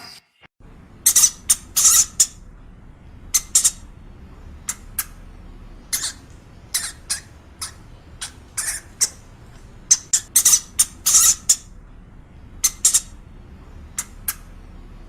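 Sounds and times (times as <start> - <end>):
small animal squeaking: 1.0 - 2.4, 3.3 - 3.9, 5.9 - 11.7, 12.6 - 13.2.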